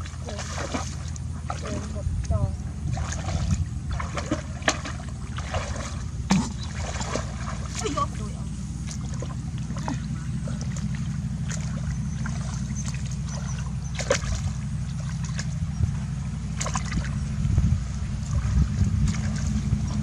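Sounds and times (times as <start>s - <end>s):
low hum: 0.0s - 20.0s
water splashing: 0.0s - 20.0s.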